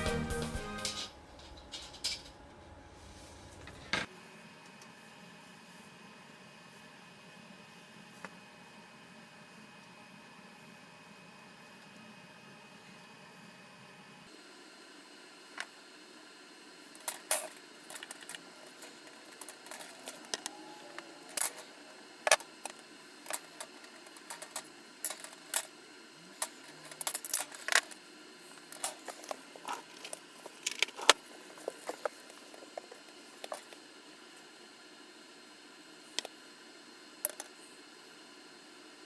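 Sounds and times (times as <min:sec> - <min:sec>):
small metal parts clinking: 0:17.0 - 0:20.5, 0:22.3 - 0:25.7, 0:26.4 - 0:28.0, 0:28.6 - 0:33.7.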